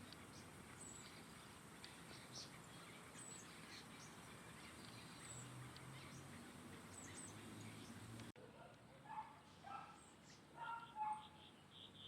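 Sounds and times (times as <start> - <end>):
steady background hiss: 0.0 - 8.3
small birds chirping: 0.0 - 12.0.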